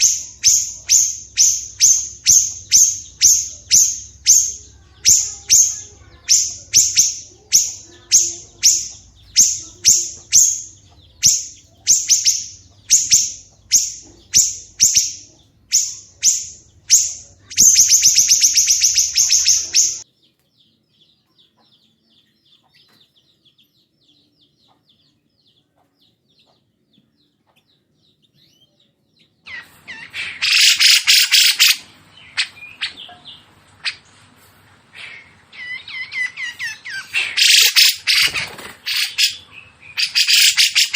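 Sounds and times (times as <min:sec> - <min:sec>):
loud harsh bird call: 0:00.0 - 0:20.1, 0:29.4 - 0:34.1, 0:34.9 - 0:40.9
songbird calling: 0:00.0 - 0:20.1, 0:27.9 - 0:34.1, 0:35.0 - 0:40.9.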